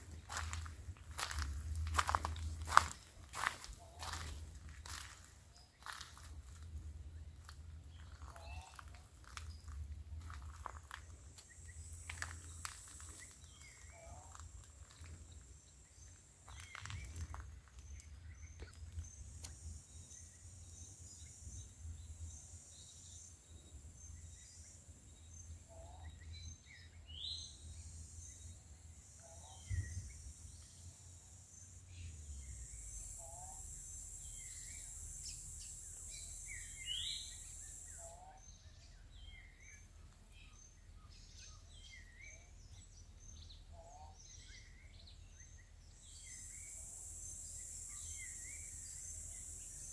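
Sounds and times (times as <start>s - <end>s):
low rumble: 0.0s - 12.6s
bird calls and chirps: 0.0s - 49.9s
high-pitched insect drone: 32.5s - 38.2s.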